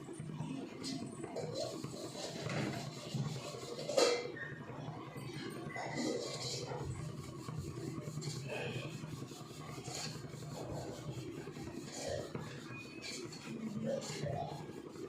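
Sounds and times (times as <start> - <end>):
steady low hum: 0.0 - 15.0
rasping scraping strokes: 5.8 - 15.0.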